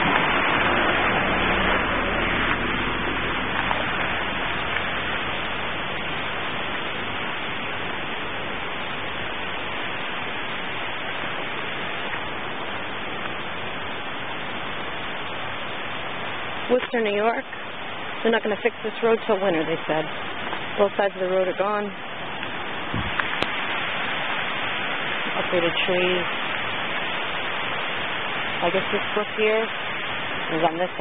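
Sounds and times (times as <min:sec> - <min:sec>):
low vehicle engine: 0:00.0 - 0:09.1
brook rushing: 0:00.0 - 0:13.7, 0:18.2 - 0:31.0.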